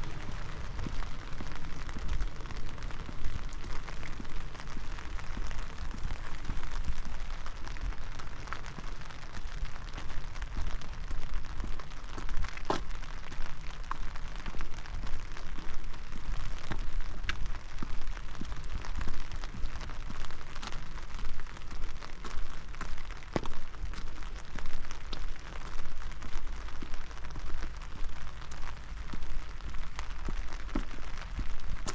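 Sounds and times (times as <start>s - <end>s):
low rumble: 0.0s - 12.6s
steady rain falling: 0.0s - 31.9s.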